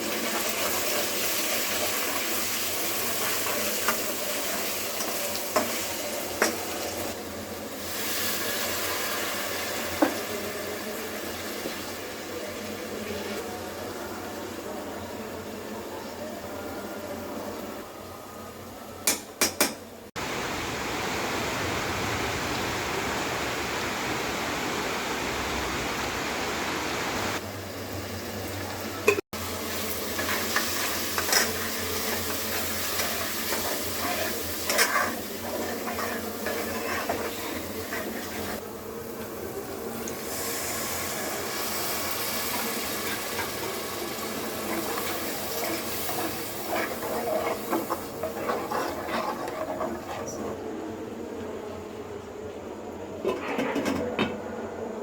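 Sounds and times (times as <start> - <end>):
food sizzling in a pot: 0.0 - 17.8, 27.4 - 50.6.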